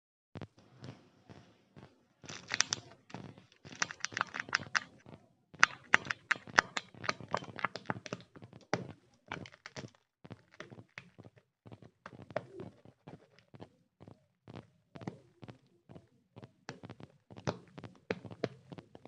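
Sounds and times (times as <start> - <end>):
candy wrappers crinkling and tearing: 2.3 - 5.0, 5.6 - 8.2, 9.3 - 11.1.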